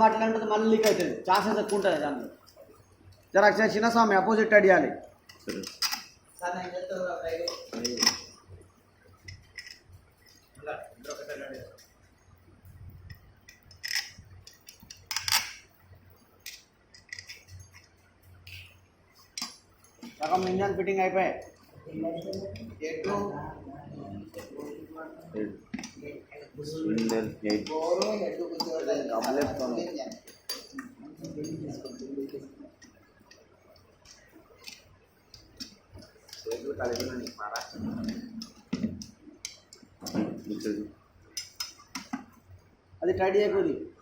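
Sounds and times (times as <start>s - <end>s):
metal tools and parts clinking: 5.2s - 6.2s, 7.2s - 8.4s, 9.1s - 11.9s, 13.0s - 15.7s, 16.4s - 20.7s, 25.7s - 33.0s
metallic clicks of tools: 5.3s - 6.2s, 13.0s - 15.7s, 16.4s - 20.5s, 41.3s - 42.2s.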